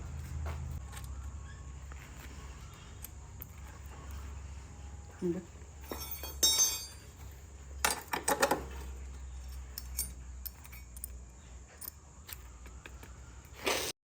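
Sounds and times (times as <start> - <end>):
low steady hum: 0.0 - 13.8
metal clinks: 5.8 - 12.4.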